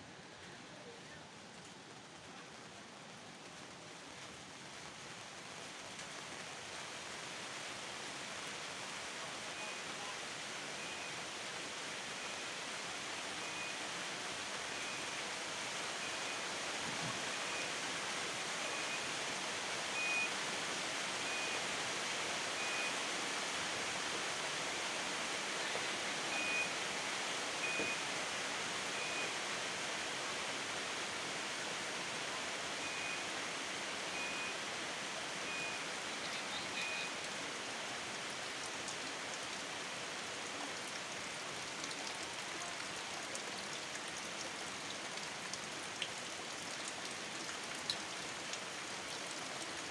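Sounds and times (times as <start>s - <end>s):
rain falling: 0.0s - 49.9s.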